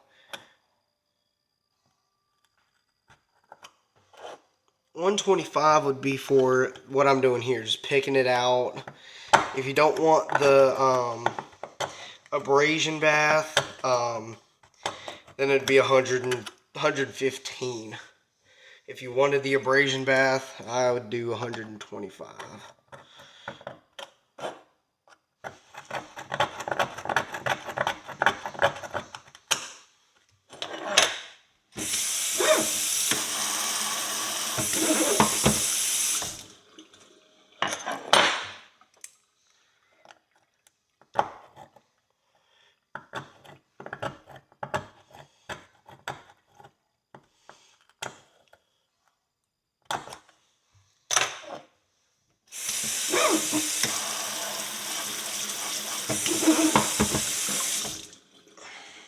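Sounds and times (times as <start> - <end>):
kitchen tap running: 31.8 - 37.6, 52.5 - 58.7.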